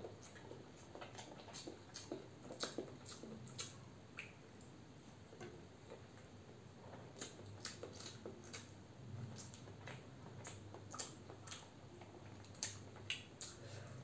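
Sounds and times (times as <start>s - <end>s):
faint chewing: 0.0s - 14.0s
wet mouth clicks: 1.0s - 4.4s, 9.4s - 11.7s, 12.4s - 13.6s.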